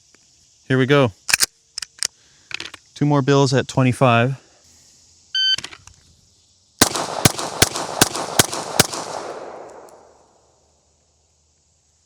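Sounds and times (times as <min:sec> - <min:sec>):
handgun shots with echo: 0:06.8 - 0:10.1.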